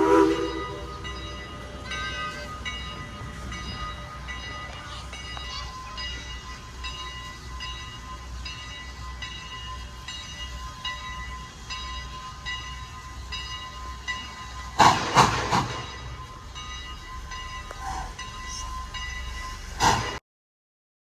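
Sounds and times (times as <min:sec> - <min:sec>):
railroad bell ringing: 0:00.0 - 0:20.2.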